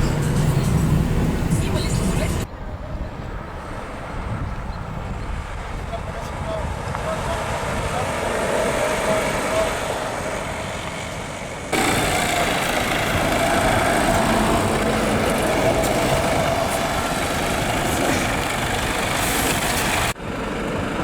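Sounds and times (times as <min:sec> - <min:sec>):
heavy truck engine running: 0:00.0 - 0:02.5, 0:07.2 - 0:21.0.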